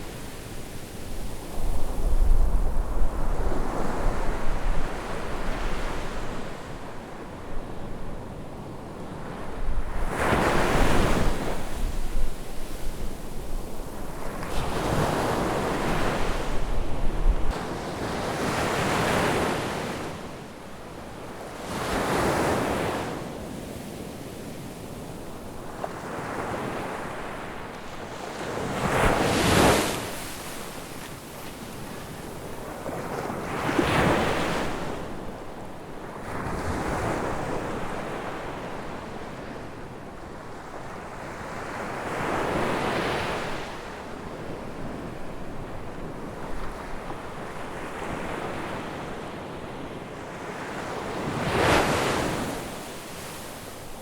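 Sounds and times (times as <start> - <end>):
wind rumble on microphone: 1.2 - 6.6, 9.4 - 17.6
ocean waves breaking on beach: 21.1 - 35.4, 46.3 - 54.0.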